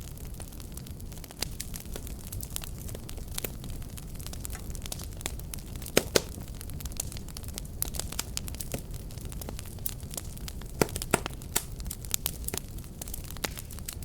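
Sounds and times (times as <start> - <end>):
wood fire crackling: 0.0 - 14.0
loud wood snaps: 5.8 - 6.4, 10.8 - 11.7.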